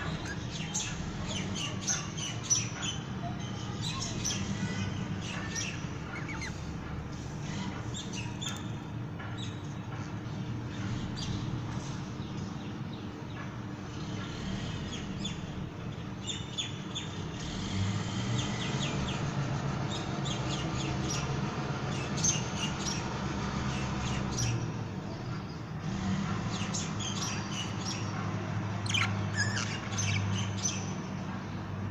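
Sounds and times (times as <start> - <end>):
budgerigars chirping and chattering: 3.8 - 6.6, 28.8 - 31.0.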